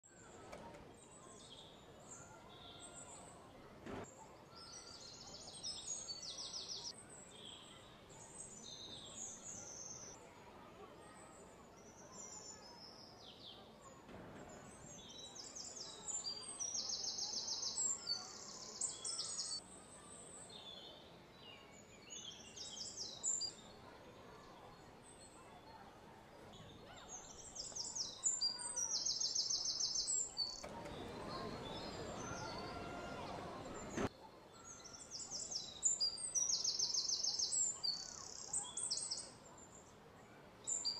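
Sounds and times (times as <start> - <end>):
outdoor background noise: 0.0 - 40.9
small birds chirping: 0.0 - 40.9
birds calling: 26.4 - 39.7.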